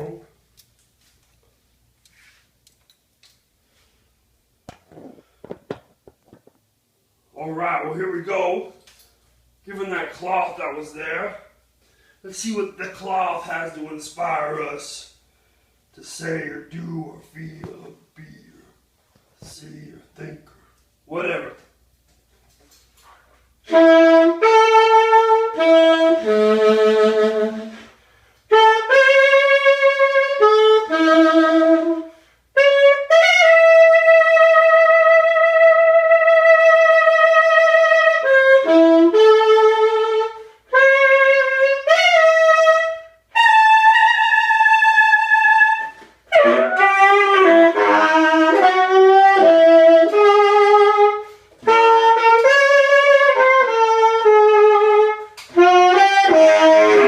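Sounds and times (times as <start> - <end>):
solo saxophone improvising: 4.8 - 5.4, 22.7 - 57.0.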